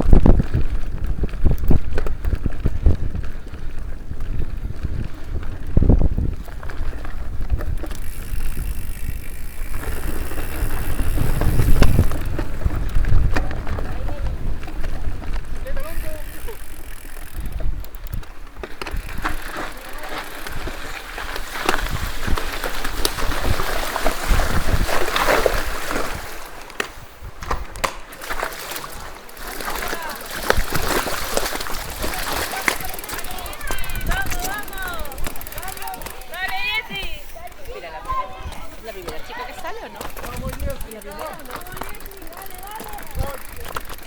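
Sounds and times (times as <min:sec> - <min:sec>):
wind buffeting microphone: 0:00.0 - 0:27.9, 0:28.9 - 0:44.0
bike knocks and rattles: 0:00.0 - 0:44.0
mountain bike on dirt trail: 0:00.0 - 0:44.0
water splashing and sloshing: 0:18.5 - 0:37.4.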